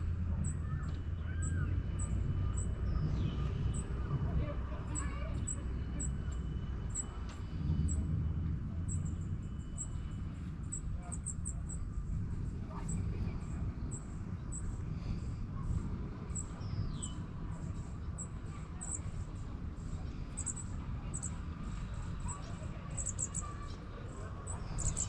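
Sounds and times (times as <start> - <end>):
birds and insects chirping: 0.0 - 4.0, 4.8 - 8.0, 8.9 - 11.9, 16.2 - 25.0
steady low rumble: 0.0 - 25.0.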